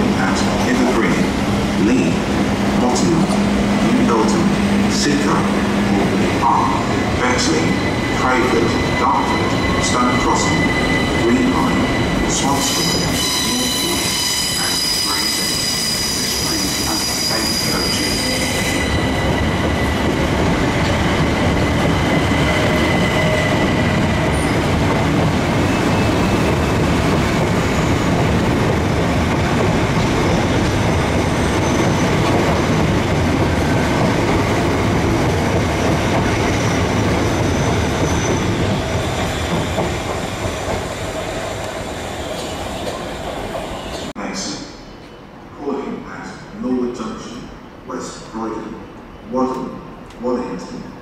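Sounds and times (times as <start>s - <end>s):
train wheels rumbling on track: 0.0s - 44.1s.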